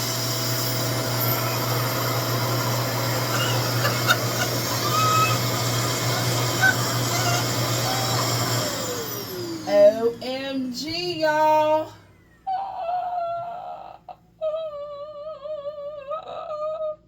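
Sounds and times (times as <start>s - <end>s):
hair dryer fan and motor hum: 0.0s - 12.5s.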